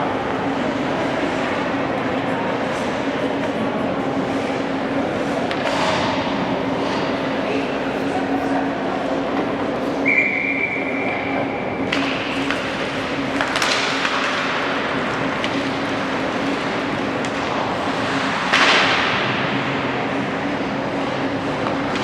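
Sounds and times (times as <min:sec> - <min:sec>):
arena hum: 0:00.0 - 0:18.5
referee's whistle: 0:10.0 - 0:11.3.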